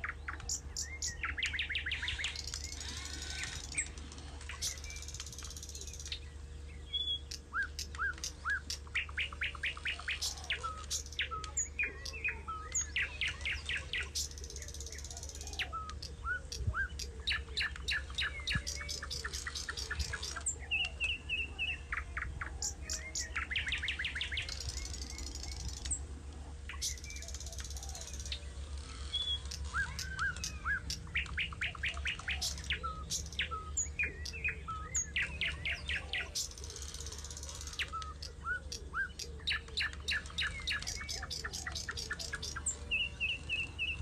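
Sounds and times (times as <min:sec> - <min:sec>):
songbirds chirping and trilling: 0:00.0 - 0:44.0
steady low hum: 0:00.0 - 0:44.0.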